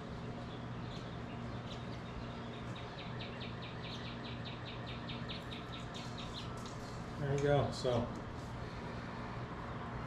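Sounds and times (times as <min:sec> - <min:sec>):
steady low hum: 0:00.0 - 0:10.0
bird chirping rapidly: 0:00.2 - 0:06.6.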